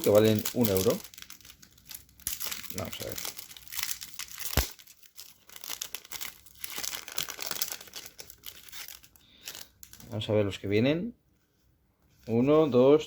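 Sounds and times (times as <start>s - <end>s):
foil packet tearing and crinkling: 0.0s - 10.1s.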